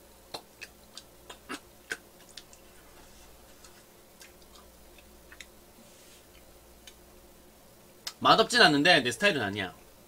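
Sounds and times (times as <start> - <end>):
wet lip-smacks while chewing: 3.6 - 5.5.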